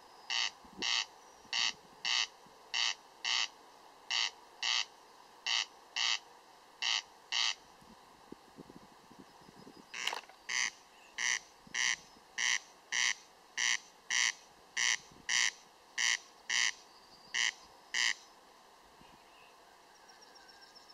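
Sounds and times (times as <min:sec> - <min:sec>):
corncrake rasping call: 0:00.3 - 0:07.6, 0:09.9 - 0:18.3.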